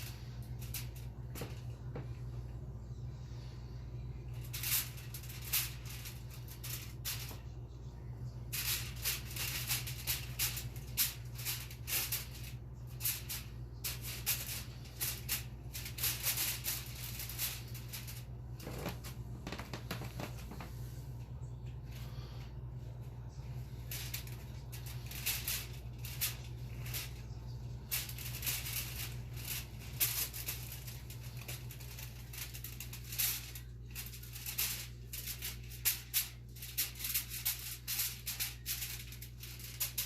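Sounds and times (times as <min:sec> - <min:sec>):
steady low hum: 0:00.0 - 0:40.0
aluminum foil crinkling: 0:08.5 - 0:20.6, 0:23.8 - 0:40.0.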